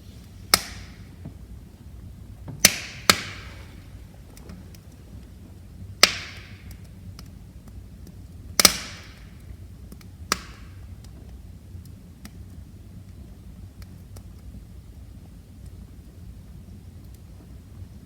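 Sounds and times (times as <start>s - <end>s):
low steady rumble: 0.0s - 18.0s
wood fire crackling: 0.0s - 18.0s
sharp pops of fire: 0.1s - 13.2s.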